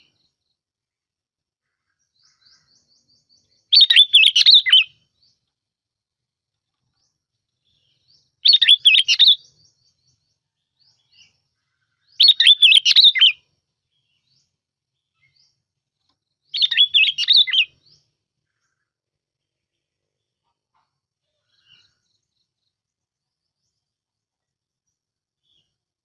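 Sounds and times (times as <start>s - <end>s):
bulbul warbling song: 2.2s - 5.1s, 8.5s - 10.2s, 12.2s - 13.4s, 16.5s - 18.0s.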